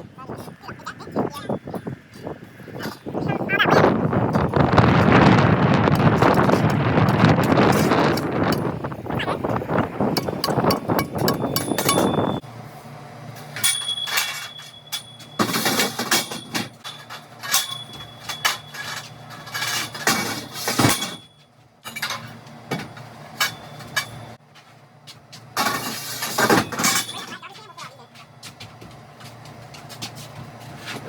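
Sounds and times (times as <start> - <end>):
hard objects knocking and clinking: 10.1 - 12.4.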